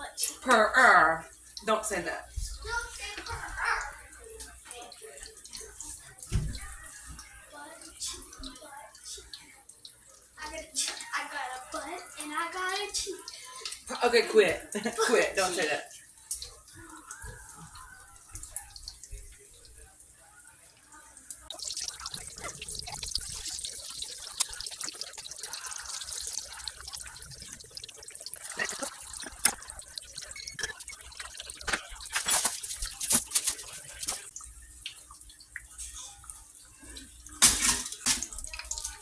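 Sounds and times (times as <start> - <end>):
water splashing into sink: 0.1 - 11.9, 12.6 - 19.9, 21.0 - 39.0
items clinking and knocking: 28.5 - 34.3, 37.4 - 38.4.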